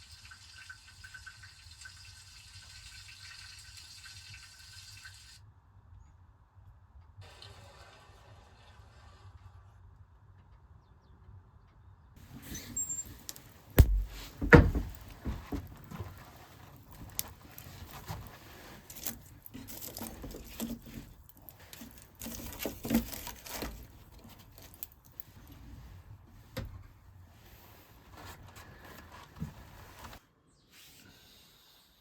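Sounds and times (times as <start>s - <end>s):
rustles: 12.2s - 30.2s
loud thuds: 13.7s - 16.0s
wood knocking on wood: 13.8s - 15.9s.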